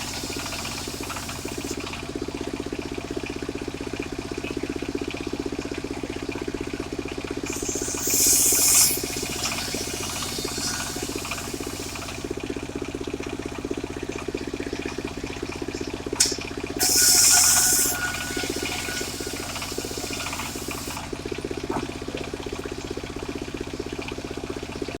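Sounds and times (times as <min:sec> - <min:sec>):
loud hiss: 0:00.0 - 0:01.8, 0:07.5 - 0:12.2, 0:16.8 - 0:21.0
sawmill engine running: 0:00.0 - 0:02.1, 0:07.4 - 0:12.7, 0:16.8 - 0:21.6.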